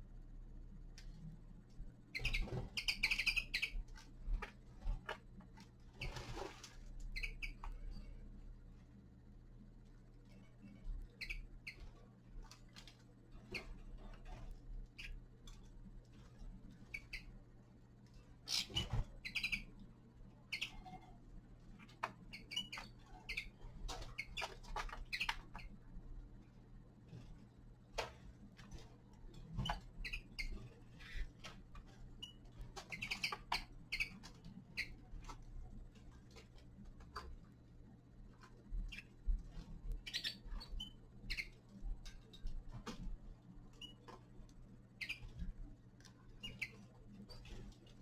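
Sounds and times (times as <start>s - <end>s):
bird chirps: 2.1s - 3.8s, 7.1s - 7.7s, 11.2s - 11.8s, 18.4s - 19.7s, 20.5s - 21.0s, 22.3s - 23.5s, 24.1s - 25.7s, 29.6s - 31.3s, 32.2s - 34.2s, 40.0s - 41.6s, 45.0s - 45.3s, 46.4s - 46.8s.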